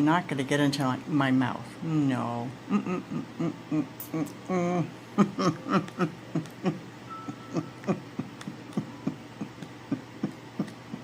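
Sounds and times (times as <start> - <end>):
person laughing: 2.7 - 11.0.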